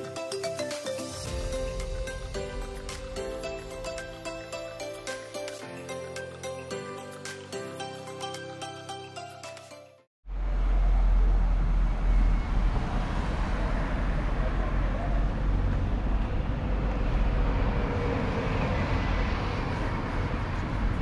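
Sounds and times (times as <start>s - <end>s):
music: 0.0s - 10.1s
road vehicle rumble and hiss: 10.3s - 21.0s.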